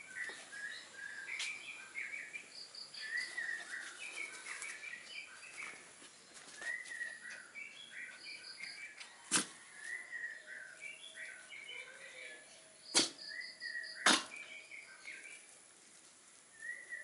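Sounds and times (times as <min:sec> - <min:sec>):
birds singing: 0:00.0 - 0:15.7, 0:16.4 - 0:17.0
sharp click: 0:12.9 - 0:13.2.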